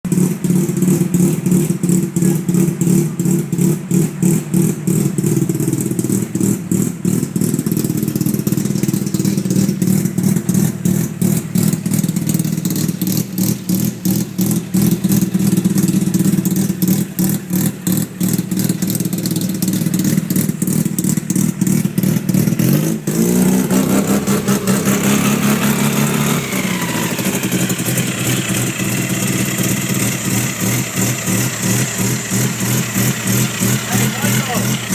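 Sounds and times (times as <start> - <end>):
rotary engine idling and revving: 0.0 - 34.9.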